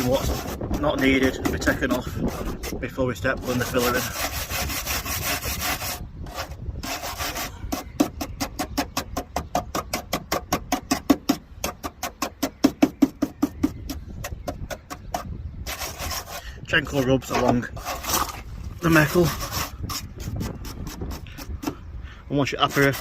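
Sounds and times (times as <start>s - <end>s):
wire brush scrubbing steel: 0.0s - 8.2s, 15.6s - 21.7s, 22.4s - 23.0s.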